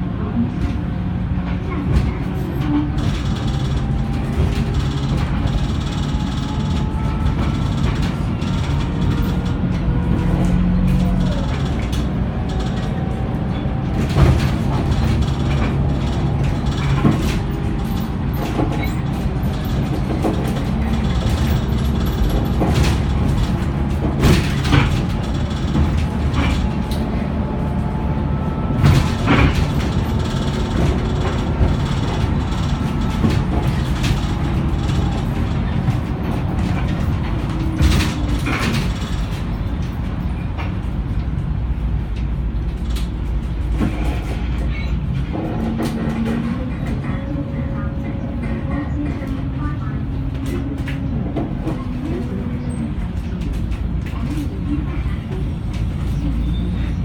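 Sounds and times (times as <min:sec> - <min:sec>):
bus engine humming: 0:00.0 - 0:57.0
body rattles and knocks: 0:01.9 - 0:41.4.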